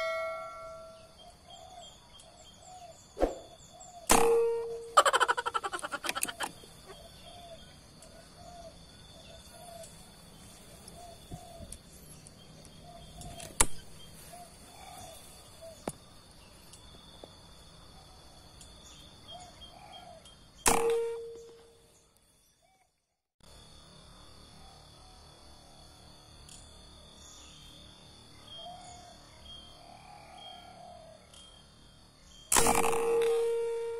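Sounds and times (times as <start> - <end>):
ringing tone: 0.0 - 1.2, 4.1 - 5.0, 20.7 - 21.8, 32.6 - 33.9
insect buzz: 1.5 - 22.3, 23.4 - 33.9
dove cooing: 5.0 - 9.8, 14.2 - 15.8
gunshot cracks: 32.5 - 33.1.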